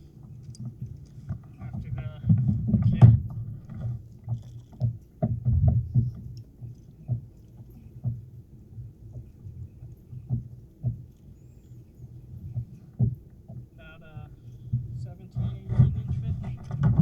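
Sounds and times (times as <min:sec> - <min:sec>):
water slapping on kayak hull: 0:00.0 - 0:17.0
faint small clicks: 0:00.2 - 0:01.6, 0:03.7 - 0:05.2.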